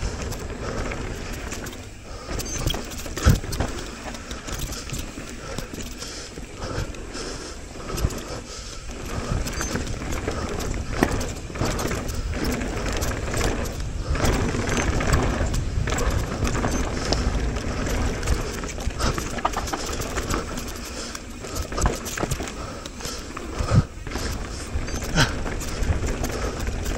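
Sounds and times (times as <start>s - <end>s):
bike knocking and rattling: 0.0s - 26.9s
bike tyres rolling over dirt and rocks: 0.0s - 26.9s
wind buffeting microphone: 7.7s - 22.9s.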